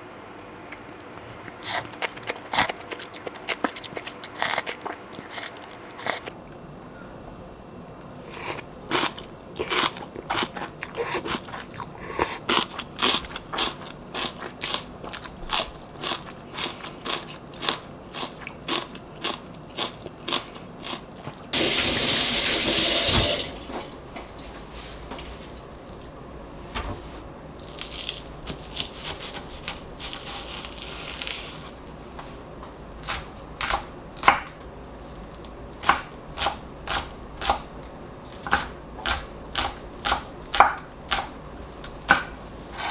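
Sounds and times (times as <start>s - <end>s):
running tap: 21.6s - 24.5s.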